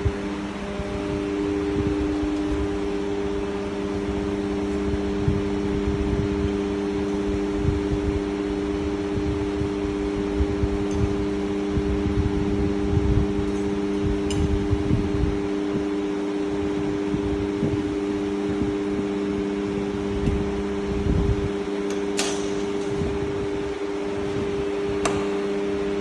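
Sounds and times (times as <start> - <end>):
uneven low rumble: 0.0 - 15.9
machinery hum with fixed tones: 0.0 - 26.0.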